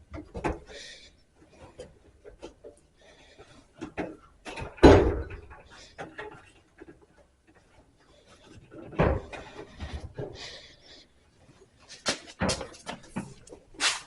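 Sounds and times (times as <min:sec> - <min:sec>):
knocks and scrapes of dryer panels: 0:08.4 - 0:10.5.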